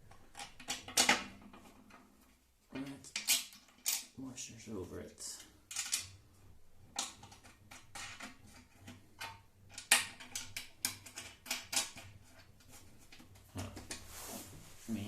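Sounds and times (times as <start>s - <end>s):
clicks and knocks of parts handled: 0.1s - 2.1s, 2.7s - 4.2s, 5.3s - 6.2s, 6.9s - 14.1s.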